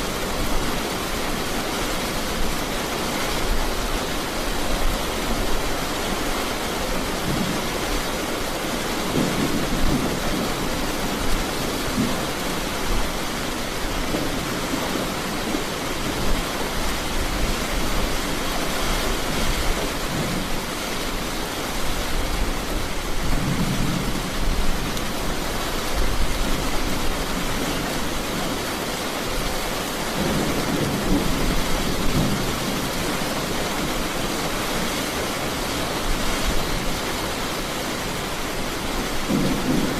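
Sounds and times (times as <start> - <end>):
heavy rain falling: 0.0 - 39.9
low rumbles of thunder: 9.0 - 12.8, 23.1 - 25.1, 30.1 - 33.3, 39.1 - 39.9.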